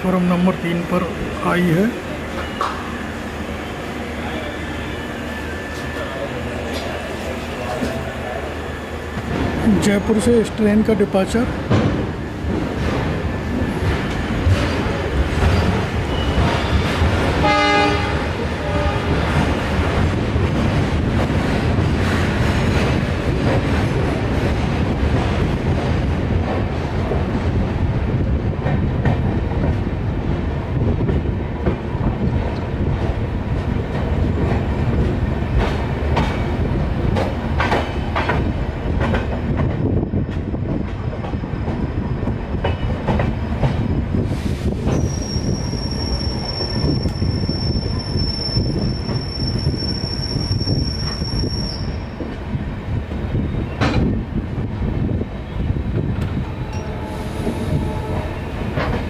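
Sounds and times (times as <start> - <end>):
train wheels rumbling on rail: 0.0 - 59.0
high-pitched wheel squeal: 44.9 - 52.1.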